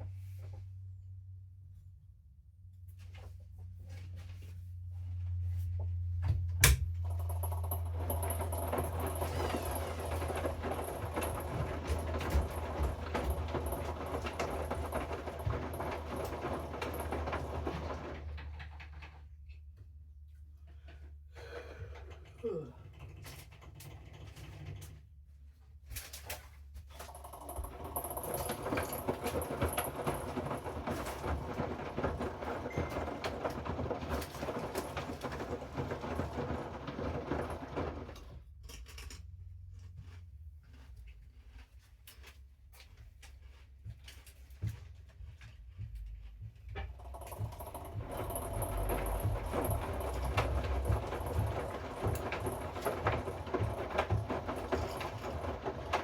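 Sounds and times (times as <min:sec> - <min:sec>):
washing machine drum turning: 0:06.4 - 0:18.6, 0:27.1 - 0:38.2, 0:46.8 - 0:56.0
clatter of the load: 0:06.6 - 0:19.3, 0:26.0 - 0:39.3, 0:46.8 - 0:56.0
steady low hum: 0:45.6 - 0:55.6.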